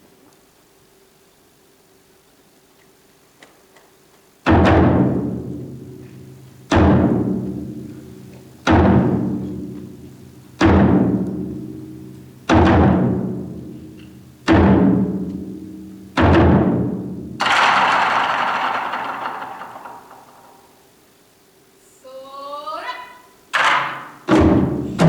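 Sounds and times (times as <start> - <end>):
taiko drum strokes: 4.5 - 20.8, 23.6 - 25.0.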